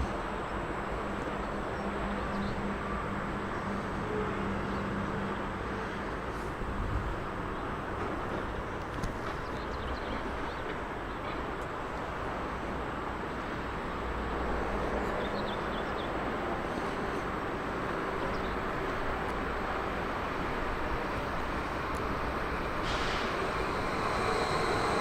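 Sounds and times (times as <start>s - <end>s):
train rumble: 0.0s - 25.0s.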